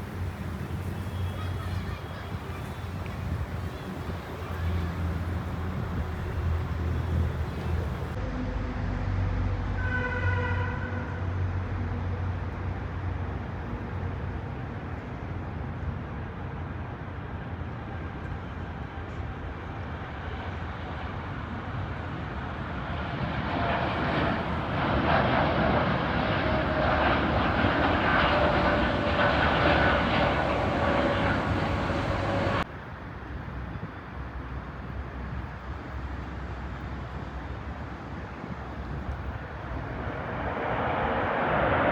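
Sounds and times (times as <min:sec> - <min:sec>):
jet airliner engines rumbling: 0:00.0 - 0:41.9
falling engine whine: 0:23.8 - 0:32.7.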